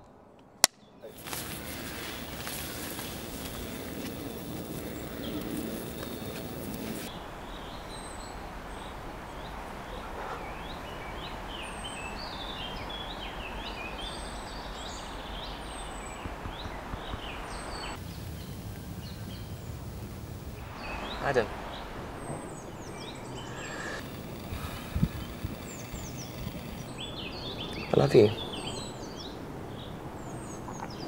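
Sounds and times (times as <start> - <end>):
birds chirping: 0.8 - 31.0
outdoor hiss: 1.1 - 7.5, 15.0 - 28.7.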